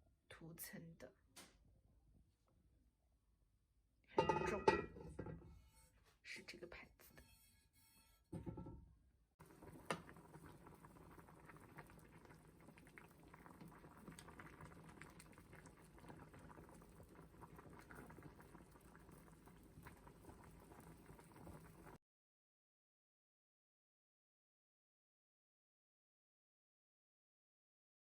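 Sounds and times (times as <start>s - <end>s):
liquid boiling in a pot: 9.4s - 22.0s.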